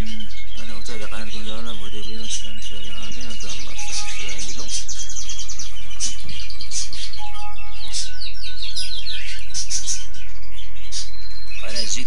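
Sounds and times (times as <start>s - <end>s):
bird whistles: 0.0s - 12.0s
small birds chirping: 0.0s - 12.0s
steady low hum: 0.0s - 12.0s.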